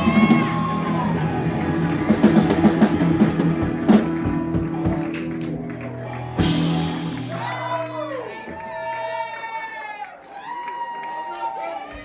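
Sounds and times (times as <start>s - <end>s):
person singing: 0.0s - 5.0s
live rock band playing: 0.0s - 8.3s
drum hits: 1.5s - 5.3s, 6.4s - 7.9s.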